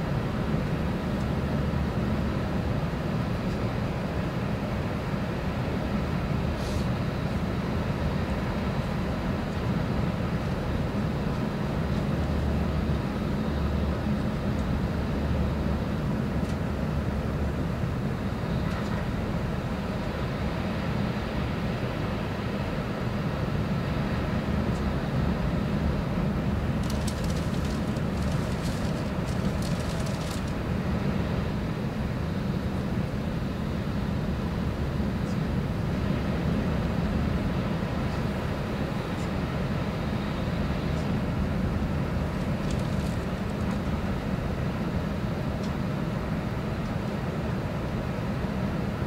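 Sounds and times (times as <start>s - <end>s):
train cabin rumble and hiss: 0.0s - 49.0s.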